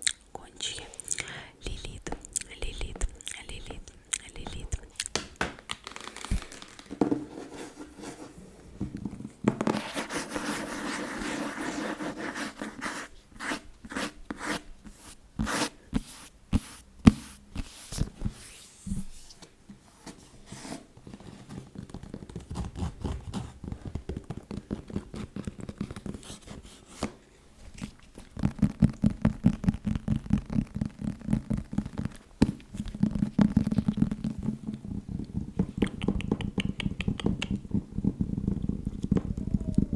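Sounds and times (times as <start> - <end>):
scratching on a book: 7.1 - 8.4, 9.6 - 19.4, 20.5 - 27.2
tapping on a book: 35.6 - 37.8.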